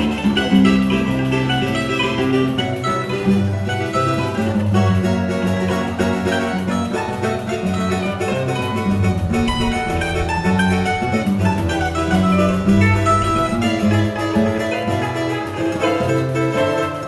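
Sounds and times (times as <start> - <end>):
plucked-string melody: 0.0 - 17.0
guitar bass line: 6.5 - 15.3.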